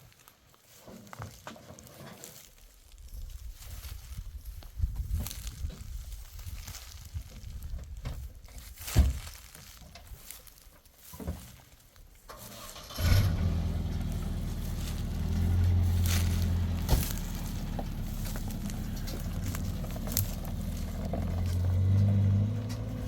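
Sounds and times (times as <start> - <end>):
engine running steadily: 12.7 - 23.0
knocks and scrapes: 13.2 - 23.0.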